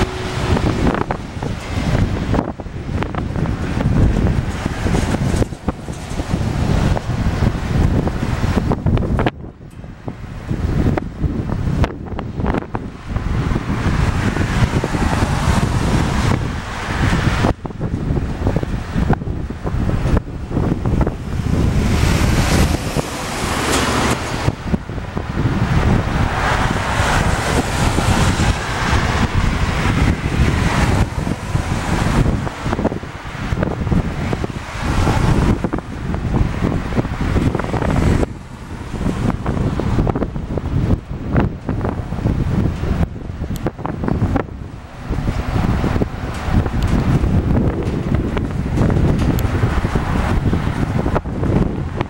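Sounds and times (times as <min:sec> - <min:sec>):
jet engine rushing: 0:00.0 - 0:09.3, 0:19.8 - 0:42.8
wind buffeting microphone: 0:00.0 - 0:52.0.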